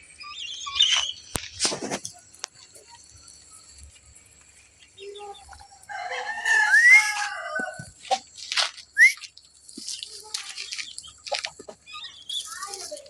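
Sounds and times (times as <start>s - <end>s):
chicken calling: 5.0s - 8.3s.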